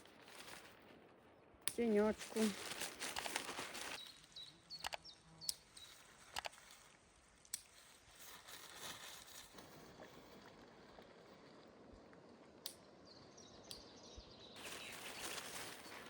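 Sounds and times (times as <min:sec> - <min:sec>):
rustling and twigs snapping: 0:00.0 - 0:12.8, 0:14.6 - 0:16.0
high bird chirps: 0:03.9 - 0:06.1, 0:13.1 - 0:16.0.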